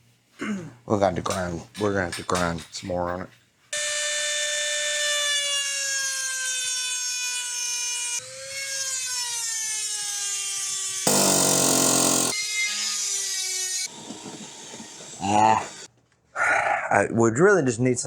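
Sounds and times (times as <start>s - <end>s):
electric grinder on metal: 11.1s - 12.4s.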